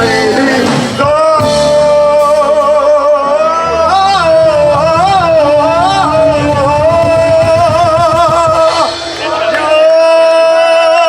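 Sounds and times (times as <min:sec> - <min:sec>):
live blues band playing: 0:00.0 - 0:10.0
bending held lead guitar note: 0:03.4 - 0:09.6.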